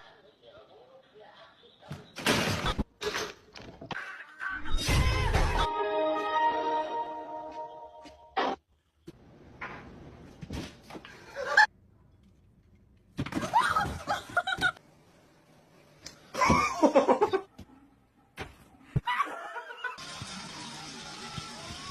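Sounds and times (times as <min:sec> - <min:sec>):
person laughing: 0:16.4 - 0:17.5.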